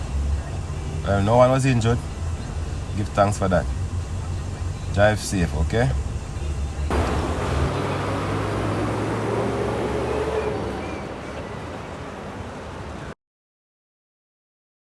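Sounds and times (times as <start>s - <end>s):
vehicle engine running: 0.0s - 11.0s
road traffic noise: 0.0s - 13.2s.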